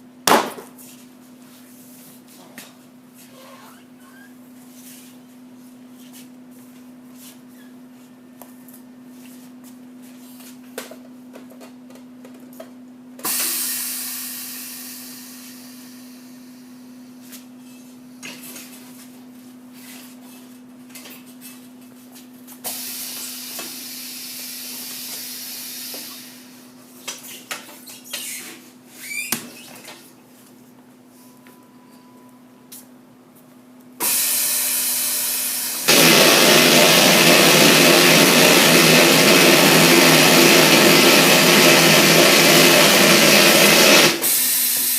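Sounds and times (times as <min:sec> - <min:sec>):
machine humming: 0:34.0 - 0:44.4
loud hiss: 0:43.0 - 0:44.9.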